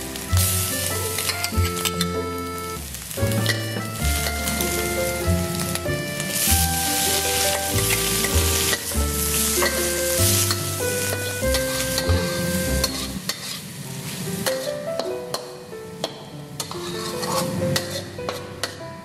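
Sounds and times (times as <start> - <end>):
oil sizzling in a wok: 0.0 - 15.5, 16.6 - 18.7
metal spatula scraping a pan: 7.0 - 13.7, 16.6 - 18.8.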